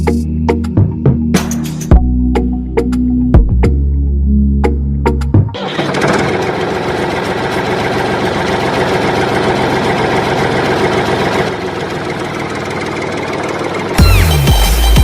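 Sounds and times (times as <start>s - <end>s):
small diesel engine rattling: 5.6s - 15.0s.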